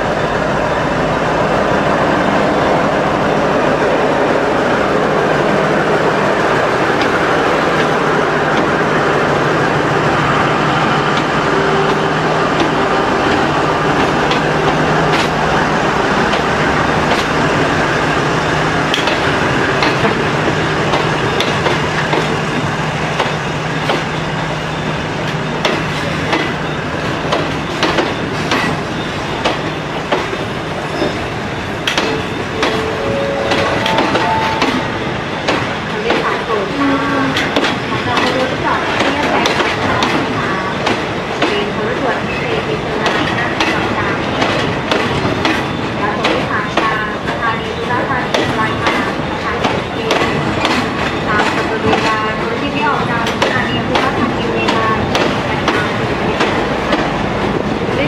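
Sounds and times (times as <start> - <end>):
diesel locomotive engine droning: 0.0 - 58.0
train coaches rolling past: 0.0 - 58.0.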